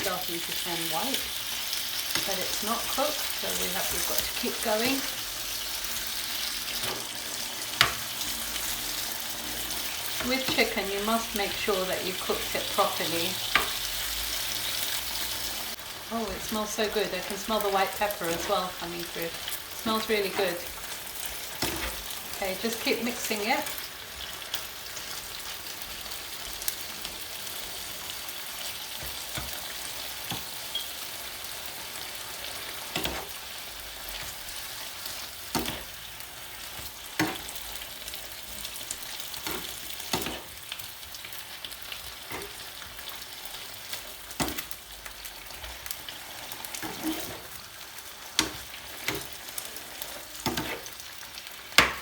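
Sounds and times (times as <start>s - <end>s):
chicken sizzling in a frying pan: 0.0s - 52.0s
spoon scraping and knocking a pan: 35.5s - 35.9s, 36.8s - 37.6s, 39.4s - 40.6s, 46.8s - 47.5s, 50.4s - 51.0s.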